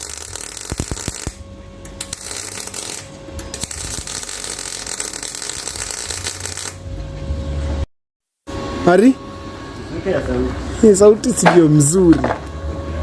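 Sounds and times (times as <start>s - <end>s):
welder arc crackling: 0.0s - 6.9s.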